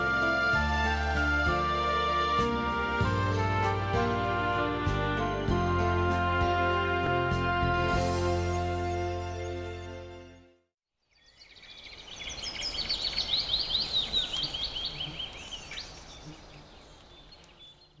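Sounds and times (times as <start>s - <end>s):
background music: 0.0s - 10.6s
songbird singing: 11.0s - 18.0s
outdoor background noise: 11.1s - 18.0s.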